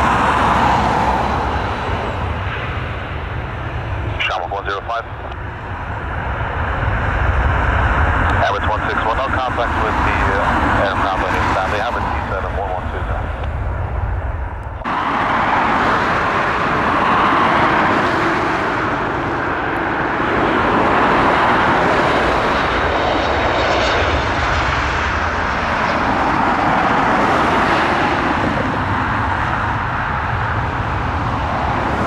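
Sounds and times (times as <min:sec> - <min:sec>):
jet airliner engines roaring: 0:00.0 - 0:32.0.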